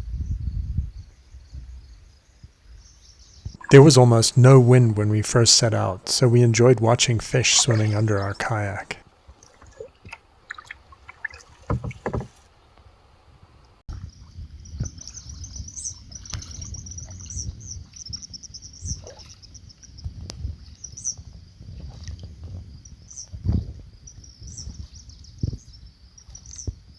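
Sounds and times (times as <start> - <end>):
paddle splashing in water: 3.5 - 12.7, 15.8 - 19.5
light knocks: 11.6 - 12.5.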